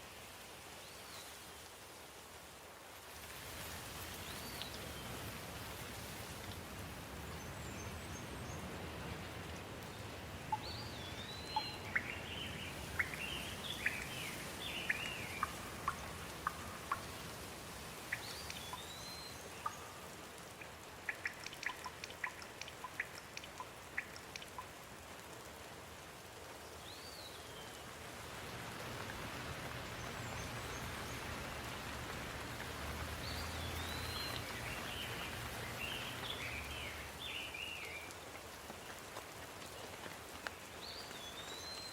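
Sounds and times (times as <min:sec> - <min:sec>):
rain falling: 0:00.0 - 0:41.9
birds chirping: 0:10.5 - 0:17.3, 0:18.1 - 0:20.2, 0:21.0 - 0:24.6, 0:29.7 - 0:37.9.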